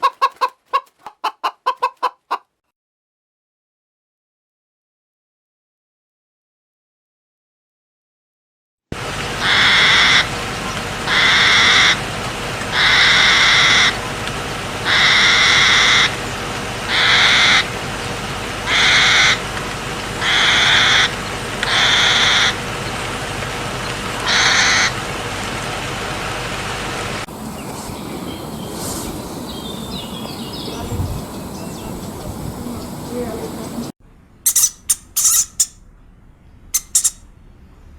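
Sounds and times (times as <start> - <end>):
animal harsh call: 9.4 - 10.3, 11.1 - 12.0, 12.7 - 14.0, 14.8 - 16.2, 16.9 - 17.7, 18.6 - 19.4, 20.2 - 22.6, 24.2 - 25.0, 34.5 - 35.8, 36.8 - 37.2
mixed background sounds: 27.3 - 33.9.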